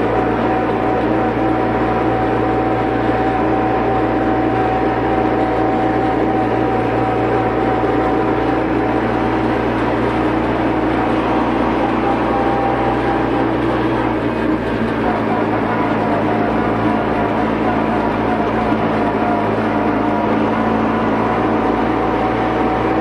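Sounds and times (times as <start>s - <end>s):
steady whine: 0.0s - 23.0s
tractor engine running: 0.0s - 23.0s.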